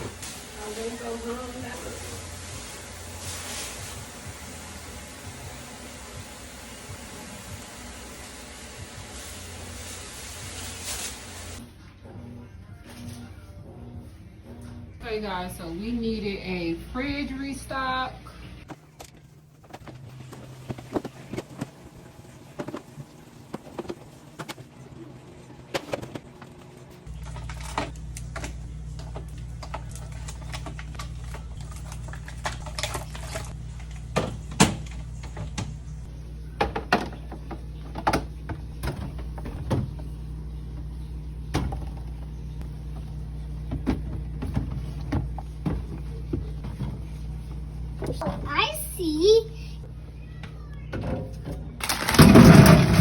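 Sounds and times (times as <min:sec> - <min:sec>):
refrigerator low hum: 0:00.0 - 0:53.0
containers clicking and clattering: 0:51.8 - 0:53.0.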